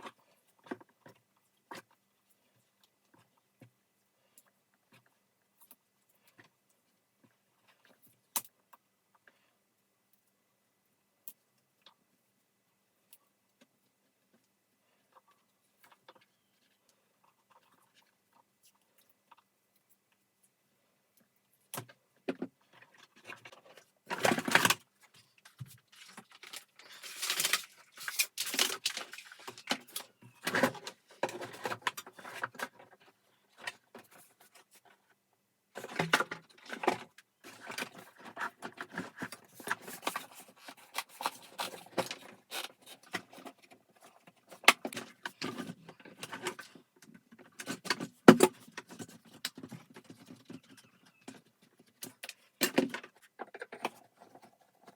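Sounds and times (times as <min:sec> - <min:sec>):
vacuum cleaner parts clicking and rattling: 0:21.8 - 0:34.4, 0:35.8 - 0:54.9.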